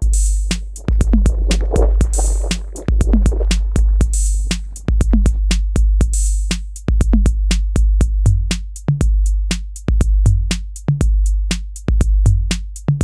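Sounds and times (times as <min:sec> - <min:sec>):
electronic music with drum machine: 0:00.8 - 0:05.4.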